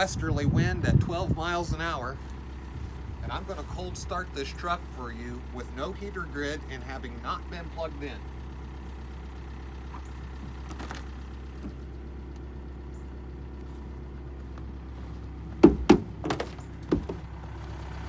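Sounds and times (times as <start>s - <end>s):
steady low rumble: 0.0s - 18.0s
sharp knocks and thunks: 15.6s - 17.3s.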